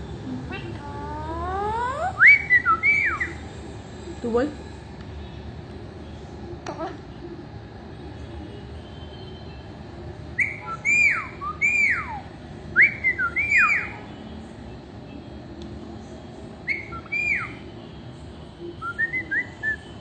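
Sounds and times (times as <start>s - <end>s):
parrot whistling: 1.0s - 3.4s, 10.4s - 14.0s, 16.6s - 17.6s, 18.8s - 19.9s.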